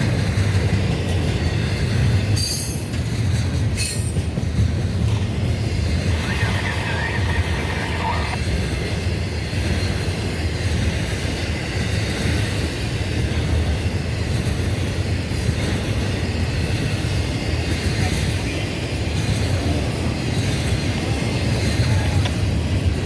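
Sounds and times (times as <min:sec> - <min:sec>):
freight train rumbling: 0:00.0 - 0:23.0
train wheel squeal: 0:02.2 - 0:04.4.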